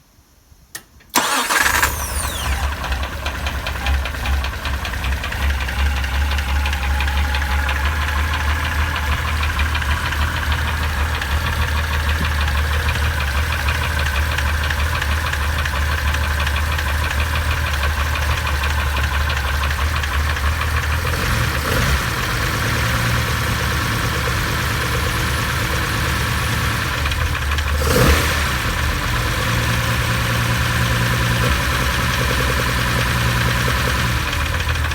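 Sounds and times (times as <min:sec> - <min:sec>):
car engine idling: 0:01.1 - 0:34.9.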